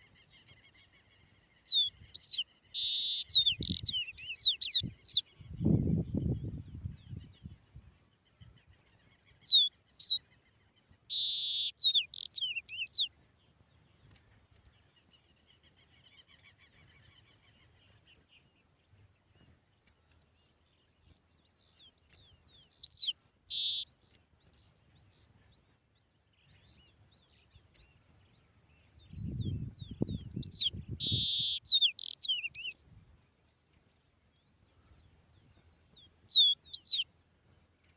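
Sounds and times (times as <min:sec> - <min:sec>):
songbird whistling: 0:01.7 - 0:05.2, 0:11.1 - 0:13.1, 0:22.8 - 0:23.8, 0:30.0 - 0:32.8, 0:36.2 - 0:37.1.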